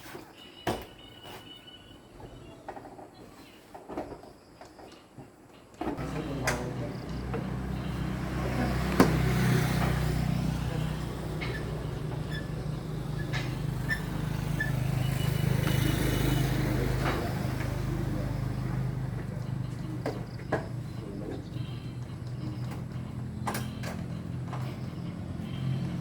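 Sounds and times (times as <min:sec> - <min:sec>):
engine starting and running: 0:06.0 - 0:26.0.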